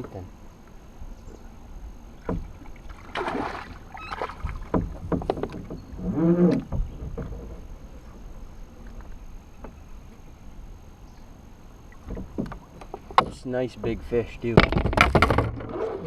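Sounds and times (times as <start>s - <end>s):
water splashing: 2.1s - 6.8s
hard knocks against kayak: 2.2s - 2.5s.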